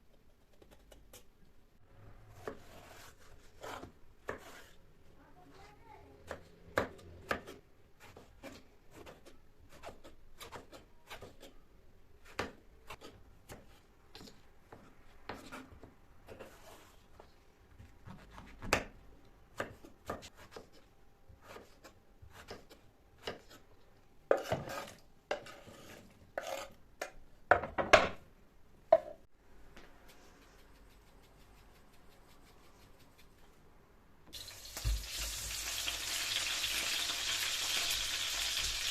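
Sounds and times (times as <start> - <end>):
knife chopping on cutting board: 2.4 - 4.8, 19.6 - 20.8, 21.4 - 23.6.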